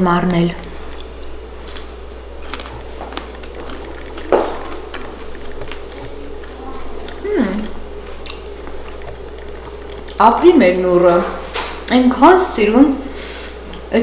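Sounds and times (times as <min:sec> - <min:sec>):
wet crunching clicks: 0:00.1 - 0:10.3
person chewing: 0:00.2 - 0:10.6
person humming mmm: 0:02.4 - 0:10.2.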